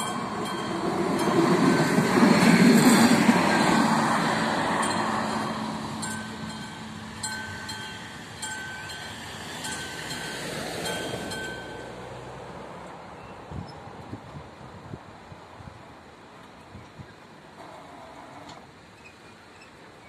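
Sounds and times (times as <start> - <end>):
crossing warning bell ringing: 0.0 - 12.3
railcar rumble: 0.0 - 20.0.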